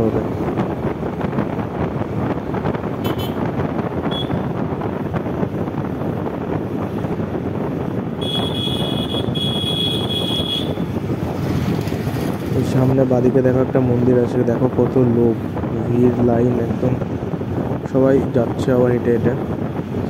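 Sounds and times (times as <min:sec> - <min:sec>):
motorcycle engine and road noise: 0:00.0 - 0:20.0
wind rushing over microphone: 0:00.0 - 0:20.0
high horn beeping: 0:03.0 - 0:03.4, 0:04.1 - 0:04.4, 0:08.2 - 0:10.8
high multi-tone horn: 0:08.2 - 0:10.8.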